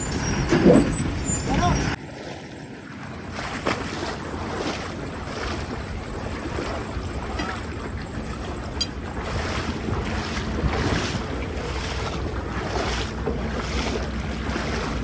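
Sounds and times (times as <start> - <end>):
flowing river water: 0.0 - 15.0
wind buffeting microphone: 3.1 - 15.0.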